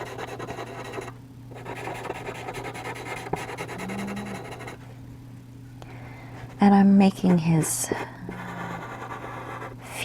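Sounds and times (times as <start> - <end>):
charcoal pencil scratching on paper: 0.0 - 4.8, 8.3 - 9.8.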